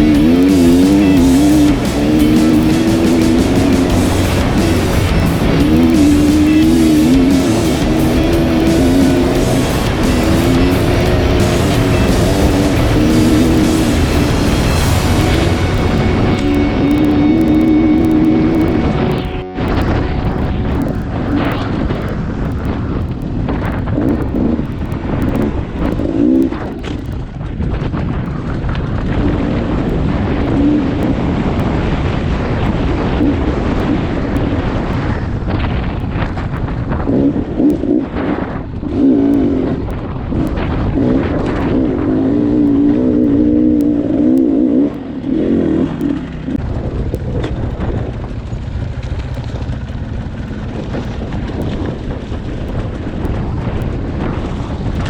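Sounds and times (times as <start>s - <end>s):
dirt bike engine revving: 0.0s - 24.6s.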